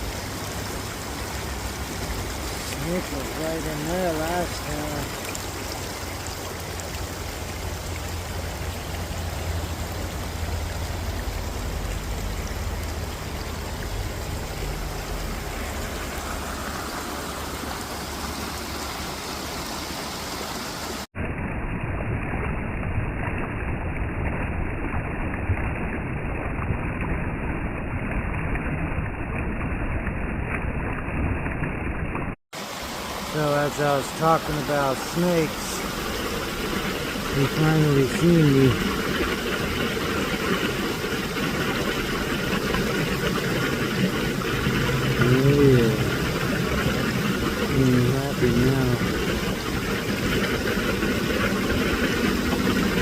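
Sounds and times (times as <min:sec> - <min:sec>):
creek water rushing: 0:00.0 - 0:21.1, 0:32.6 - 0:53.0
low rumble: 0:06.3 - 0:17.8.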